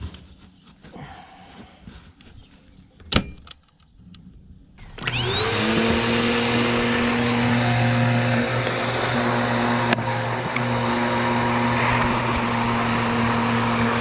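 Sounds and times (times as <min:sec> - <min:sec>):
vacuum cleaner motor whining: 0:04.8 - 0:14.0.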